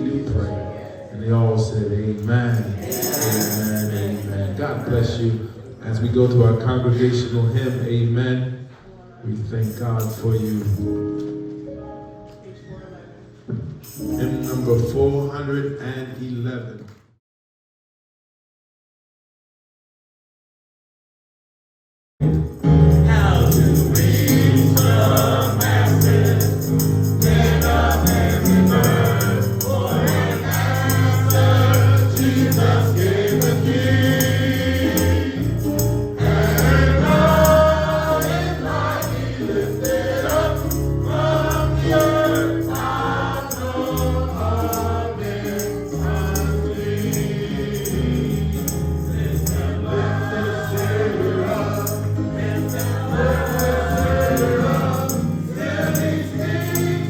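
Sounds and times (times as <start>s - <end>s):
congregation singing a hymn: 0.0s - 7.7s, 22.8s - 57.0s
instrumental accompaniment: 22.2s - 57.0s.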